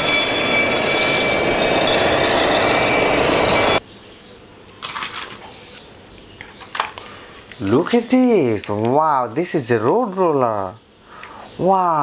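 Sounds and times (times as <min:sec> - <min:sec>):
high held electronic tones: 0:00.0 - 0:03.8.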